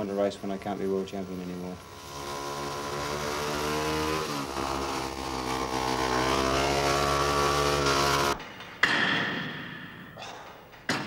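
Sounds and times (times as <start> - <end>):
motorcycle engine running hard: 0.0 - 8.4.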